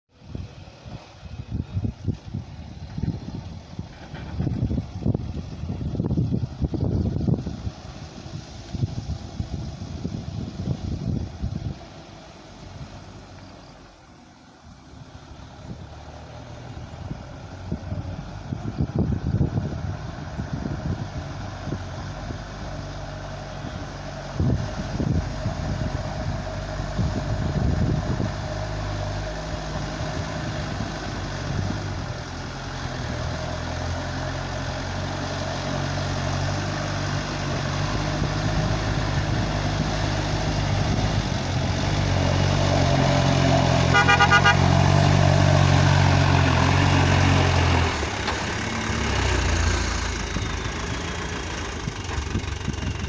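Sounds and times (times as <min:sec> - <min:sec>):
truck diesel engine labouring: 0:00.1 - 0:53.0
truck horn toot: 0:43.8 - 0:45.0.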